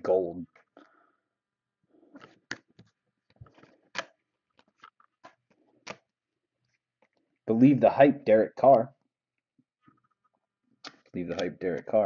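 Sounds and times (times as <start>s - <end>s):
cards clicking and sliding: 2.1s - 6.1s, 10.8s - 12.0s.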